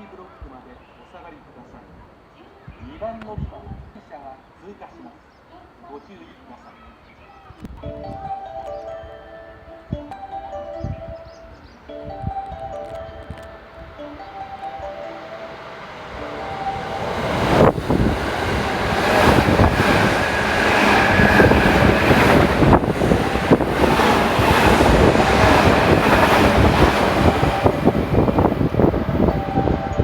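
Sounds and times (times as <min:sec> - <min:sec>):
electric train rushing past: 0:13.5 - 0:30.0
rapid clatter of wheels on rails: 0:16.8 - 0:29.4.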